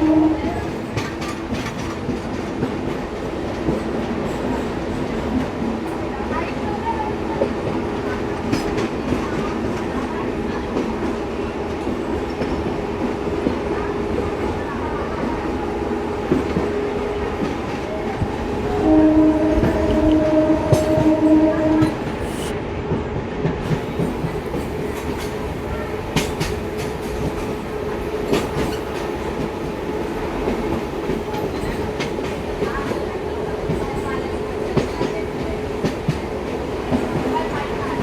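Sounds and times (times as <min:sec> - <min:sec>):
locomotive horn: 0:00.0 - 0:00.8, 0:18.6 - 0:22.1
train wheels clicking over rail joints: 0:23.6 - 0:38.0.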